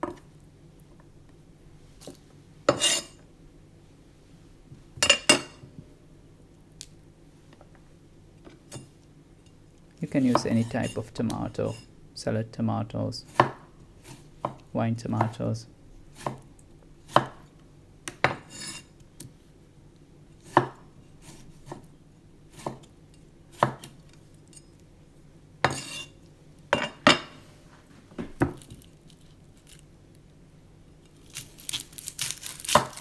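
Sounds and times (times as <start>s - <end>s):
knife striking chopping board: 22.6s - 22.9s.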